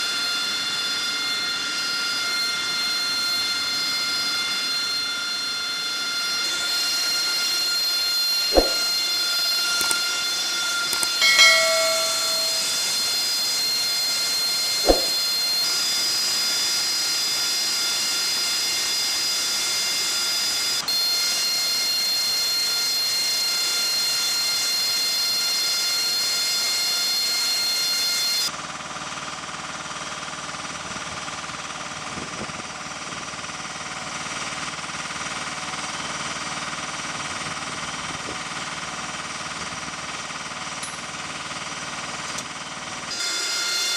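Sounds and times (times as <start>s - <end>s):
jet engine whining: 0.1s - 28.5s.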